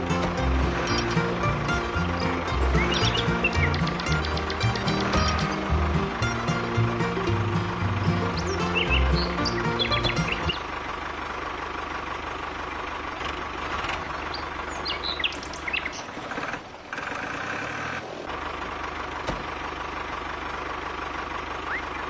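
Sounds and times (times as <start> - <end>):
birds chirping: 0.0 - 10.6
tractor engine running: 0.0 - 14.6.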